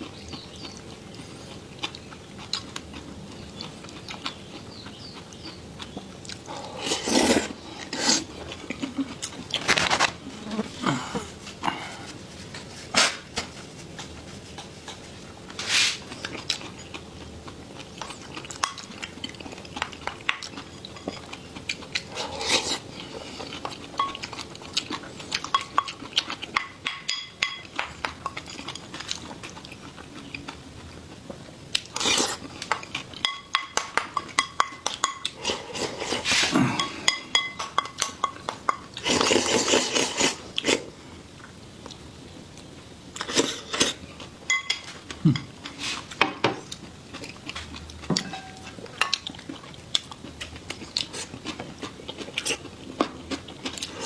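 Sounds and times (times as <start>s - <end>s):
utensils clinking against bowls: 23.6s - 24.4s, 25.4s - 29.0s, 33.2s - 40.3s, 44.5s - 45.7s, 48.0s - 49.4s.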